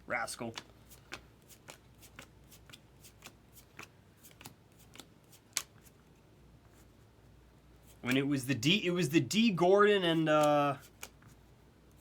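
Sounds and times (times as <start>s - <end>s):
trading cards flicking by hand: 0.4s - 6.0s, 10.1s - 12.0s.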